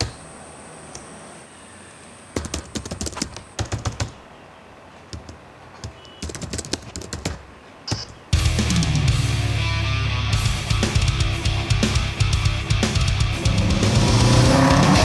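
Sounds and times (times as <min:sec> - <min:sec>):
computer keyboard typing: 0:02.4 - 0:04.2, 0:05.1 - 0:08.1.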